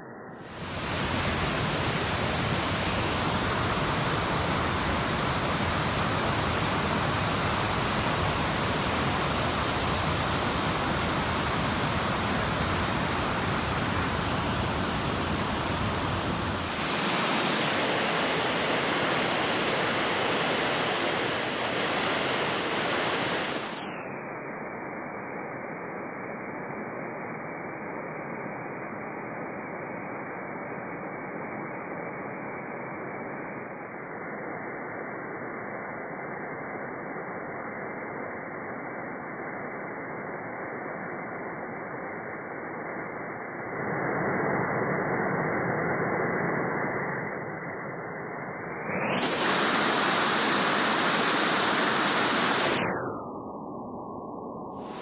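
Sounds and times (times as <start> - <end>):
waterfall rushing: 49.4 - 52.7.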